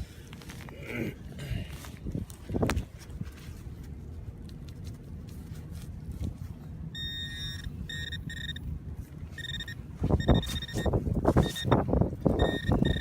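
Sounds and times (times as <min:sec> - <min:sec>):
wind rumbling on microphone: 0:00.0 - 0:13.0
metal detector beeping: 0:07.0 - 0:08.7, 0:09.3 - 0:13.0.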